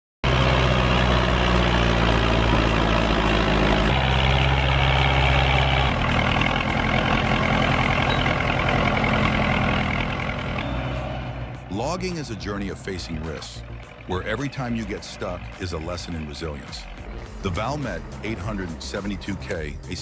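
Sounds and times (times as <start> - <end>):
heavy machine engine running: 0.2 - 19.1.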